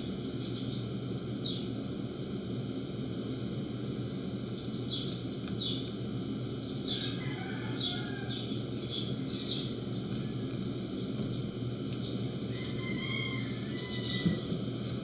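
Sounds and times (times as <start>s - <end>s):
small bird chirping: 4.8s - 6.0s, 6.6s - 11.1s.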